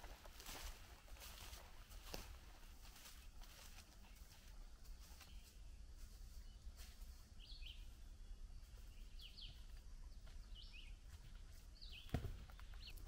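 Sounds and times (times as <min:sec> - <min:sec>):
songbird high falling chirps: 0:07.4 - 0:11.1, 0:11.7 - 0:13.0.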